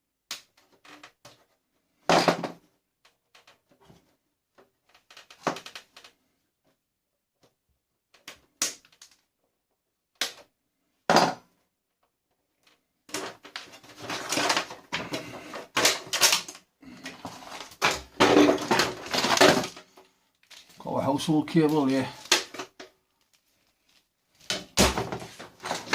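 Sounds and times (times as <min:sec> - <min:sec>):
plastic parts clattering and scraping: 0:00.5 - 0:06.3, 0:12.6 - 0:25.9.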